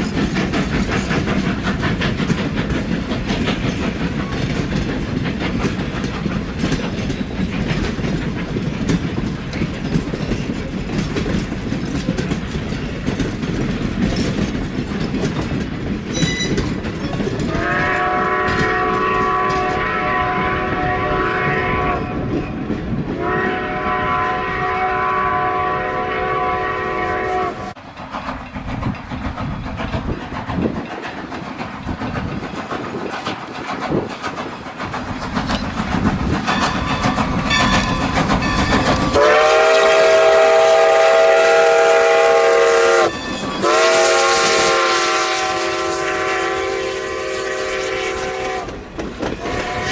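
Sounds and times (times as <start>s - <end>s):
train wheels clattering on rail: 0.0s - 49.9s
train horn chime blasts: 17.5s - 22.3s, 23.2s - 27.8s, 37.5s - 48.8s, 49.4s - 49.9s.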